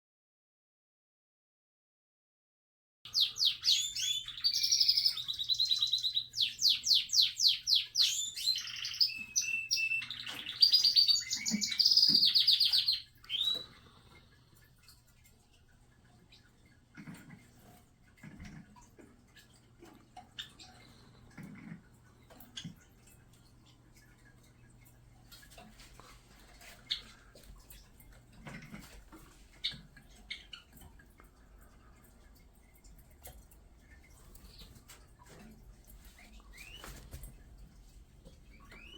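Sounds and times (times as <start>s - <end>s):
small songbird singing: 3.1s - 13.8s, 36.4s - 36.9s, 38.5s - 38.9s.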